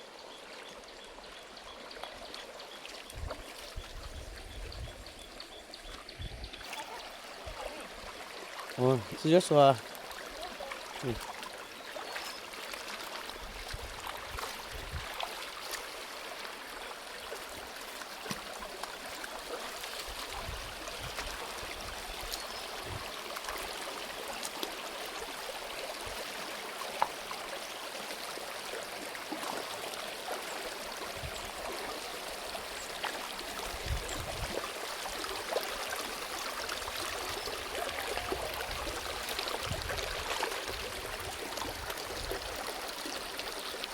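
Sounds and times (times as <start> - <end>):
stream water running over rocks: 0.0 - 43.9.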